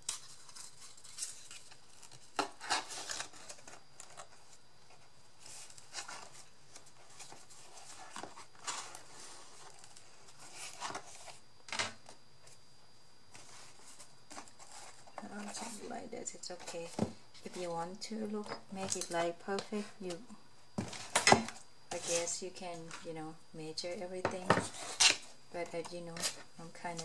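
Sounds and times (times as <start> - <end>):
paper and card rustling: 0.0 - 11.4.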